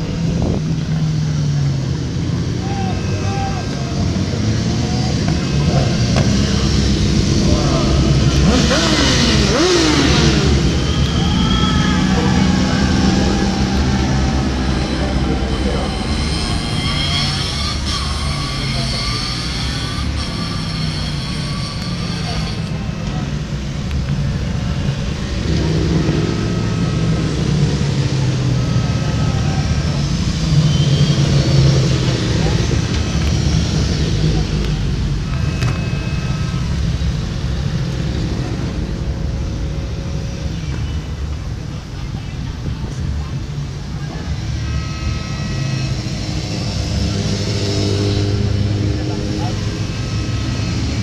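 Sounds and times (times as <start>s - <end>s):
racing motorcycle engines: 0.0s - 51.0s
steady drone: 0.0s - 51.0s.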